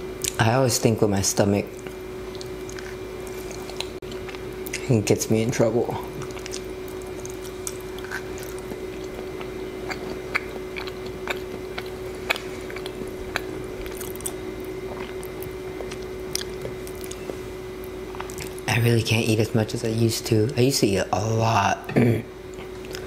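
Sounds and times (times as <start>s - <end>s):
faint hum: 0.0s - 23.0s
chewing food: 1.7s - 4.9s, 6.0s - 18.7s, 22.5s - 23.0s.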